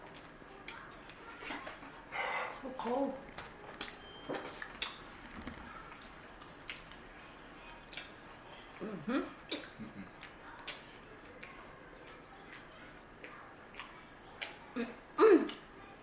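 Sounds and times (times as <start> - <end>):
wet mouth smacks and chewing: 3.8 - 5.0, 7.9 - 8.2.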